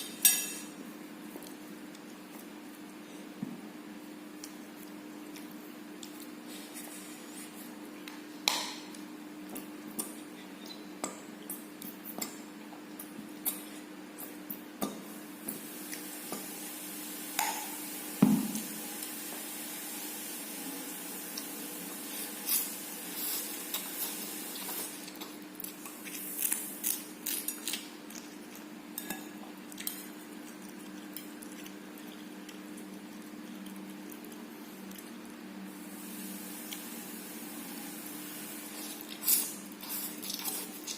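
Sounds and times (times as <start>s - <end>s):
knock: 18.2s - 18.6s
wet squishy eating sounds: 20.8s - 37.1s, 38.0s - 40.9s.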